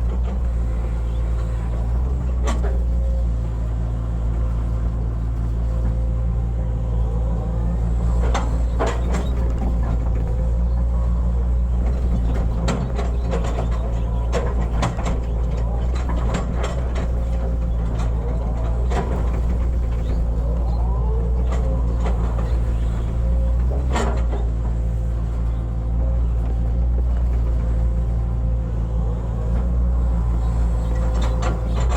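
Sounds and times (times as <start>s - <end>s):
excavator diesel engine running: 0.0s - 31.9s
machine knocks and clanks: 7.8s - 31.9s.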